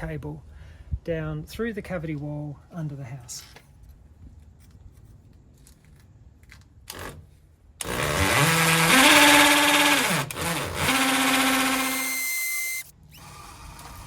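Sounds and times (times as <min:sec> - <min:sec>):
power drill boring into mortar: 0:07.8 - 0:14.0.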